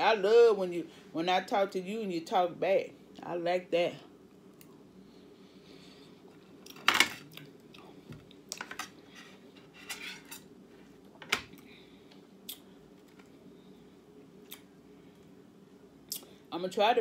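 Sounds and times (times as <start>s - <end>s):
steady low hum: 0.0s - 17.0s
cutlery clatter: 9.8s - 10.5s.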